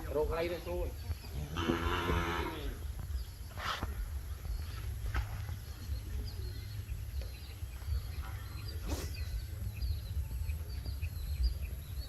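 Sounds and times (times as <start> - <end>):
small birds chirping: 0.0 - 12.0
steady low rumble: 2.6 - 12.0.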